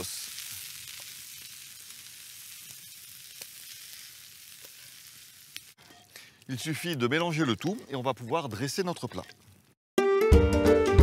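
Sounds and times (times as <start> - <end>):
food sizzling in a frying pan: 0.0 - 7.8
wooden spatula scraping a pan: 5.8 - 8.0.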